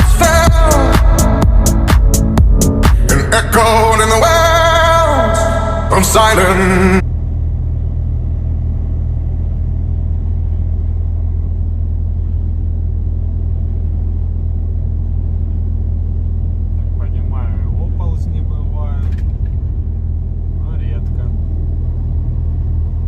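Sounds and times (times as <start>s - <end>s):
song: 0.0s - 7.0s
steady low rumble: 0.0s - 23.0s.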